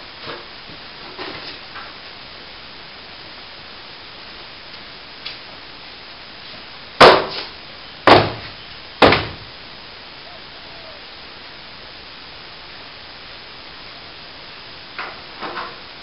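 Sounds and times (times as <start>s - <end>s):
hard knocks with ringing tail: 7.0s - 7.4s, 8.1s - 9.4s.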